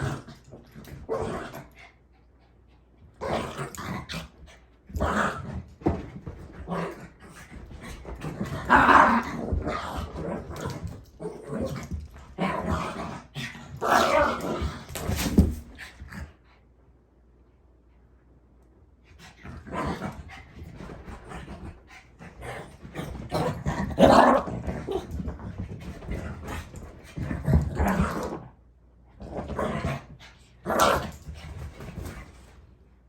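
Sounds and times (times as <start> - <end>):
dog growling and barking: 0.0 - 1.8, 3.2 - 16.3, 19.4 - 25.6, 27.2 - 28.5, 29.2 - 31.3.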